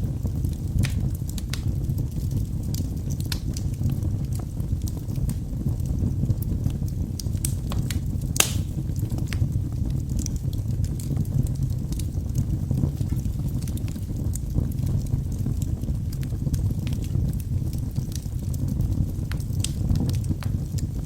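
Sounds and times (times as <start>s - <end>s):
burning logs crackling and popping: 0.0s - 21.0s
low rumble of fire flames: 0.0s - 21.0s.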